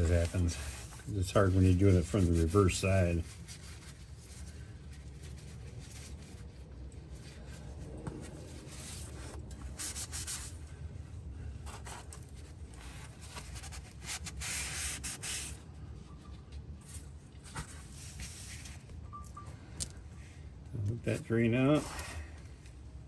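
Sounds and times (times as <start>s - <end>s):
rubbing and scuffing: 0.0s - 10.6s, 16.8s - 18.9s
low steady hum: 0.0s - 23.0s.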